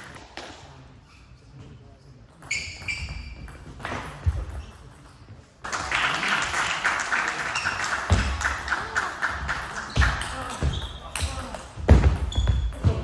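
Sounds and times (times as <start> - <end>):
spectators clapping: 5.6 - 10.6.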